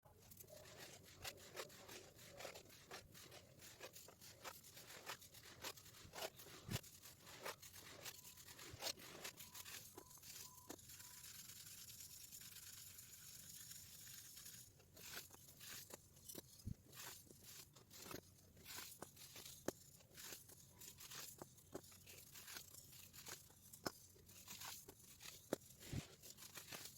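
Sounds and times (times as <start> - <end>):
baking soda crunching: 0.1 - 26.9.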